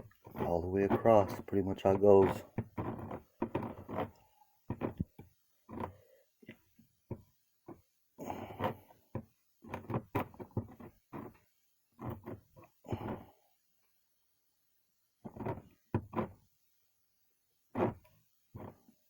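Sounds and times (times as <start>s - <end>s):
knocks and taps on plastic: 4.7s - 7.8s, 9.1s - 11.4s, 15.2s - 16.3s, 17.8s - 18.8s.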